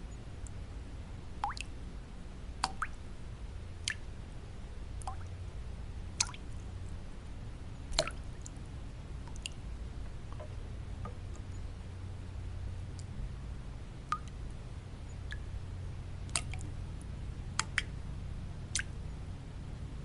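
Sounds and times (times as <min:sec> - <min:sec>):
low white-noise hum: 0:00.0 - 0:20.0
water drops plinking: 0:01.4 - 0:01.7, 0:02.6 - 0:03.0, 0:07.9 - 0:08.2, 0:16.3 - 0:16.6.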